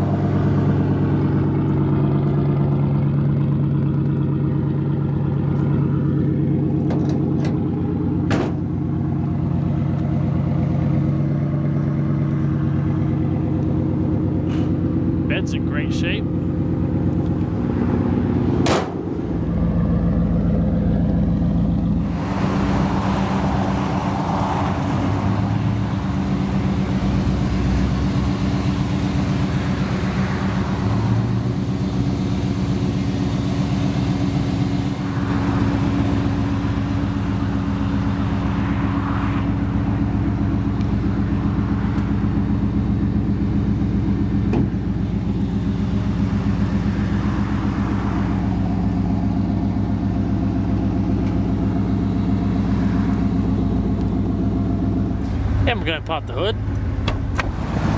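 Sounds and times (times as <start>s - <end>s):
pickup engine idling: 0.0s - 57.8s.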